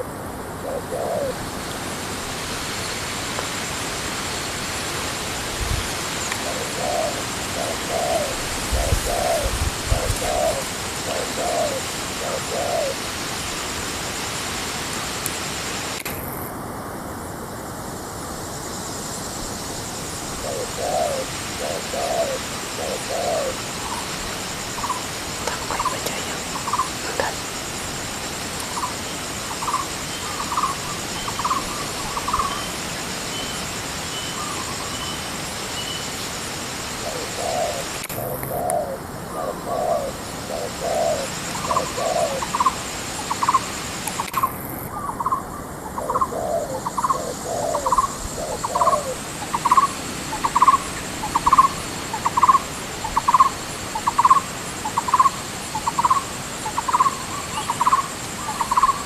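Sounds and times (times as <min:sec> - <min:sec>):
doves cooing: 0:00.0 - 0:01.5, 0:06.0 - 0:13.4, 0:20.4 - 0:27.5, 0:36.9 - 0:59.0
higher-pitched bird calls: 0:44.2 - 0:59.0.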